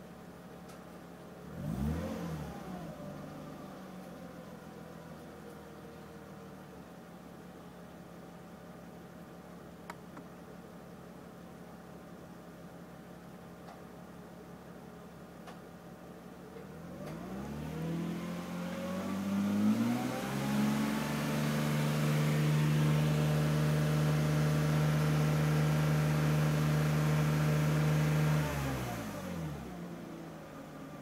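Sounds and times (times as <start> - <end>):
car engine revving: 1.4 - 3.7, 16.7 - 30.5.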